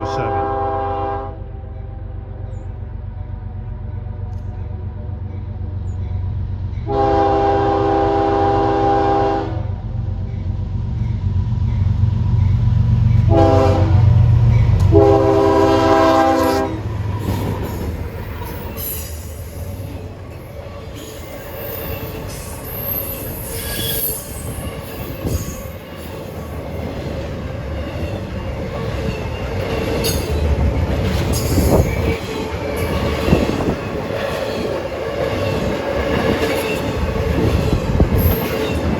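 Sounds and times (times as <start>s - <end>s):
train chime horn: 0.0s - 1.4s, 6.8s - 9.7s, 13.2s - 14.2s, 14.8s - 16.9s
locomotive engine rumble: 0.0s - 23.6s
train wheels squealing and clattering: 17.0s - 38.9s.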